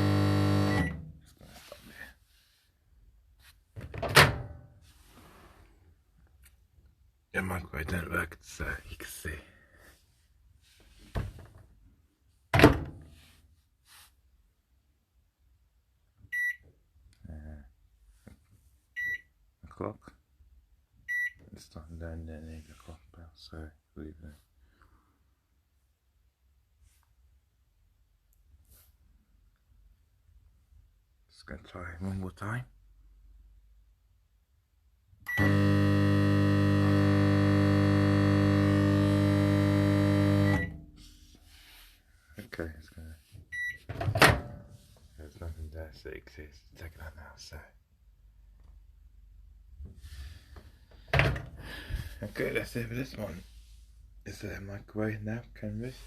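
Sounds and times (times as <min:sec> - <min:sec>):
microwave oven humming: 0:00.0 - 0:01.0, 0:35.3 - 0:40.8
microwave high tone: 0:35.3 - 0:40.8.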